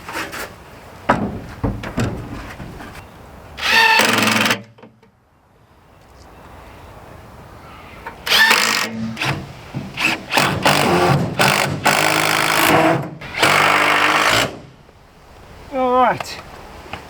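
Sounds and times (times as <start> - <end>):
power drill driving screws: 3.6 - 4.6, 8.3 - 9.4, 10.0 - 14.6.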